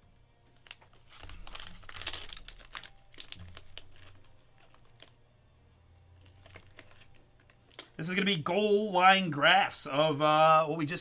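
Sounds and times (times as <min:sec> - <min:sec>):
plastic packaging crinkling: 0:00.4 - 0:05.2, 0:06.2 - 0:08.1.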